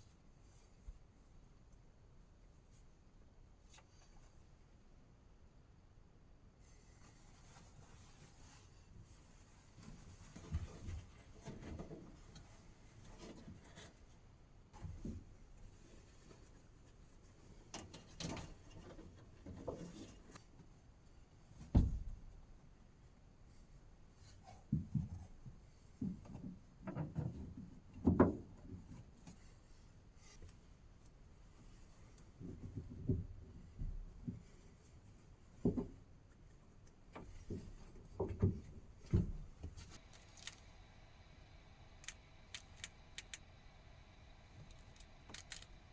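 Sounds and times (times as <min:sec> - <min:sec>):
light knocks and rustles of objects: 0:06.6 - 0:22.4, 0:23.5 - 0:40.7
light clicks: 0:40.0 - 0:45.9.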